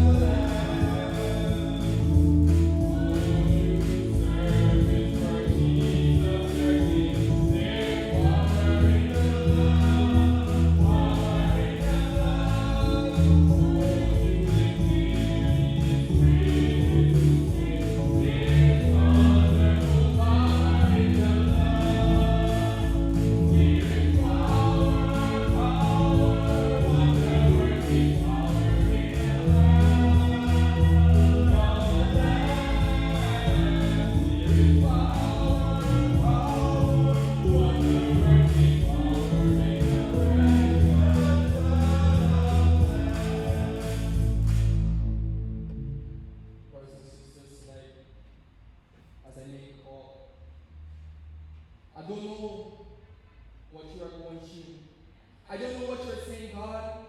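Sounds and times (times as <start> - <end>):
congregation and choir singing hymn: 0.0 - 44.7
instrumental accompaniment with bass: 0.0 - 46.7.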